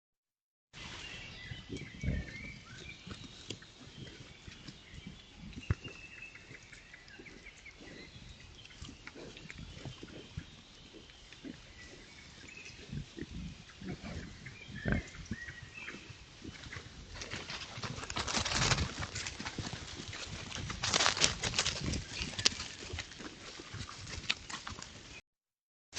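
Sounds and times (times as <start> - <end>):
wild boar grunting: 7.2 - 18.1.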